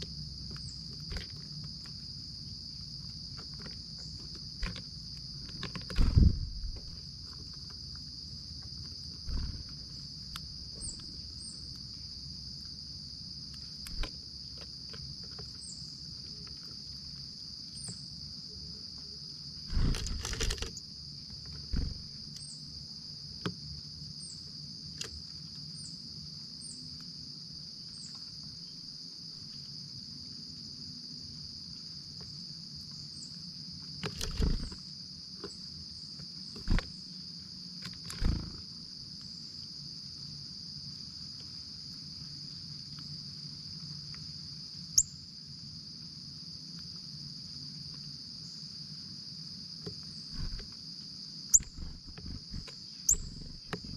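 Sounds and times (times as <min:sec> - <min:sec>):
crickets chirping: 0:00.0 - 0:53.9
low thumps and knocks: 0:05.8 - 0:07.0.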